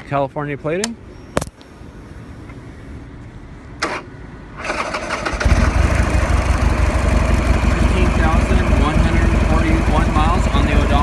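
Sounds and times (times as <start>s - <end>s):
starter motor cranking: 4.6s - 6.8s
motorcycle engine idling: 5.3s - 11.0s.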